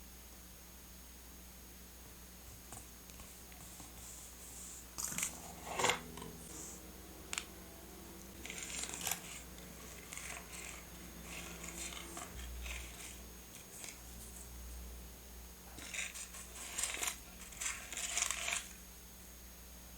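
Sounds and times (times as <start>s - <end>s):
scissors snipping paper: 8.4s - 14.3s, 15.8s - 18.8s
paper rustling: 8.4s - 14.6s, 15.8s - 18.8s.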